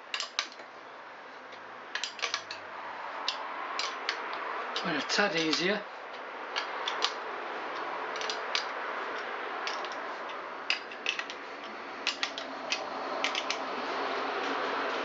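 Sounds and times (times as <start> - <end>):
sharp metallic clicks and taps: 3.2 - 13.7.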